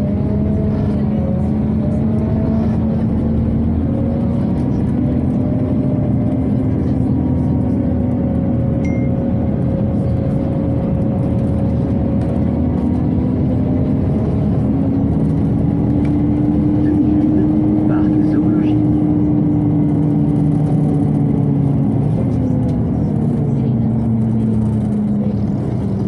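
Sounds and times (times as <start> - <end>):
bus engine drone: 0.0 - 26.0
road noise: 0.0 - 26.0
brief high beep: 8.8 - 9.2.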